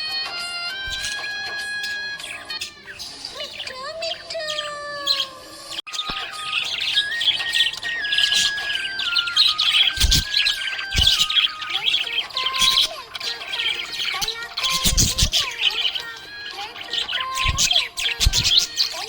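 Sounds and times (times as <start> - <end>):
budgerigars chirping and warbling: 0.0 - 19.0.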